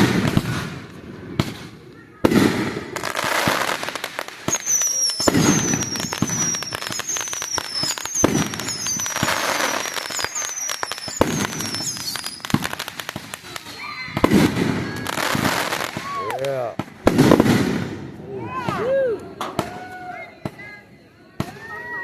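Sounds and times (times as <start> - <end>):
firework bang: 0.0 - 10.4, 11.0 - 20.6
firework crackling pops: 0.0 - 20.8
falling firework whistles: 2.3 - 16.4.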